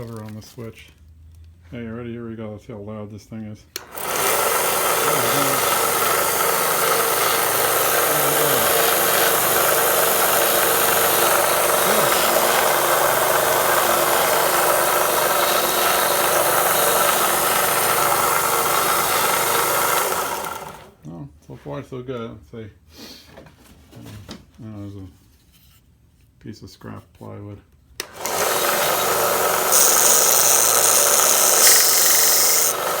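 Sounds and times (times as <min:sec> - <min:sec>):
belt sander whirring: 0:03.8 - 0:21.0, 0:28.0 - 0:33.0.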